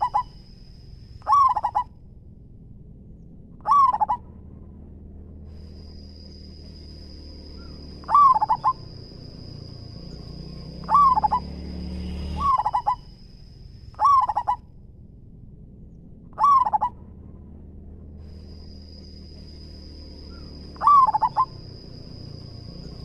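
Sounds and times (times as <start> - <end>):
dove cooing: 0.0 - 0.4, 1.2 - 1.9, 3.6 - 4.3, 7.6 - 9.1, 10.1 - 11.6, 12.4 - 13.2, 14.0 - 14.6, 16.4 - 17.0, 20.3 - 22.2.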